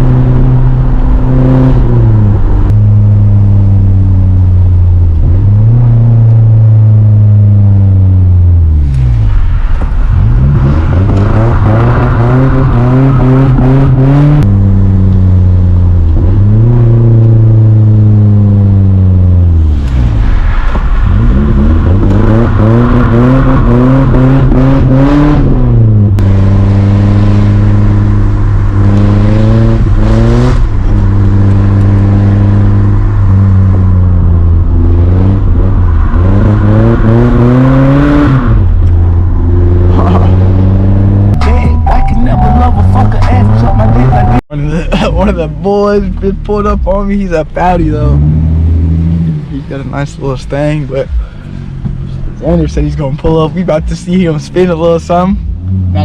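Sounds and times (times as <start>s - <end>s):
car engine revving: 0.0s - 56.0s
rushing noise: 19.5s - 25.7s, 26.3s - 45.7s.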